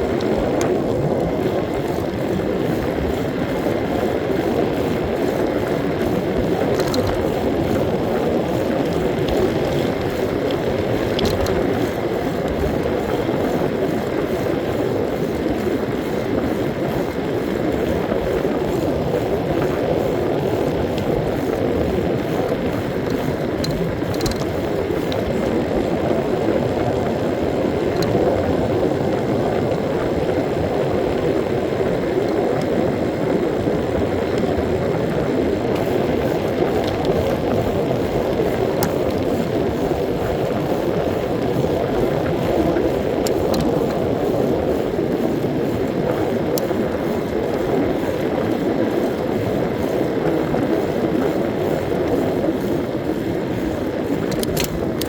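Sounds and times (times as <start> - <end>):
road noise: 0.0 - 26.0
wind rushing on microphone: 0.0 - 55.0.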